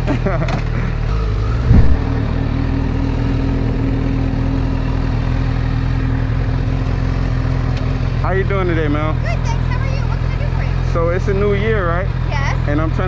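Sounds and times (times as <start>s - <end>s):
vehicle engine idling: 0.2s - 13.0s
loud low thump: 1.6s - 2.2s.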